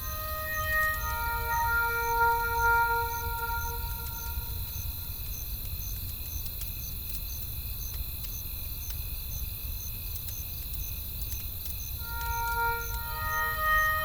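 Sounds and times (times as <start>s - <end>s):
music note: 0.0s - 4.8s, 12.0s - 14.0s
low wind rumble: 0.0s - 7.7s, 11.8s - 14.0s
campfire crackling: 0.0s - 13.8s
crickets chirping: 0.0s - 14.0s.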